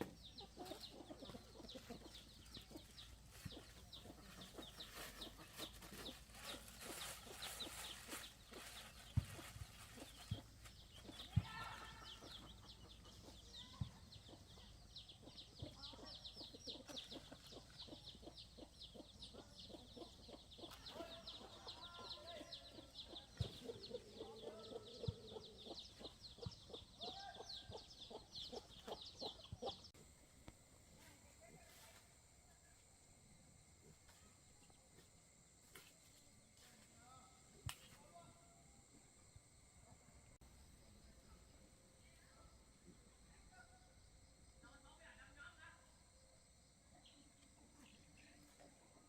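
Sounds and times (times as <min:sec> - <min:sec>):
birds peeping: 0:00.0 - 0:29.9.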